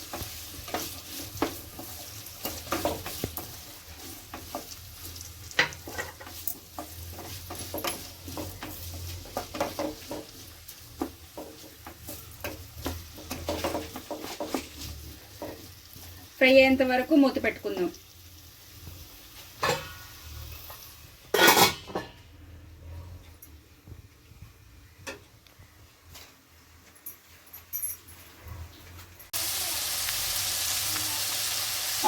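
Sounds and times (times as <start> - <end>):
spatula scraping a pan: 0.0 - 16.4
onions sizzling in oil: 0.0 - 21.8, 29.3 - 32.0.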